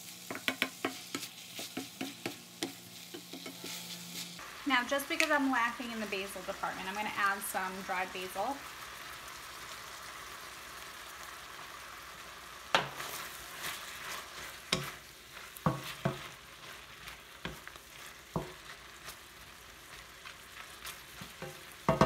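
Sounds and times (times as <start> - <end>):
chicken sizzling in a wok: 0.0 - 22.0
spatula knocking and scraping wok: 0.2 - 4.4, 12.7 - 19.2, 19.9 - 22.0.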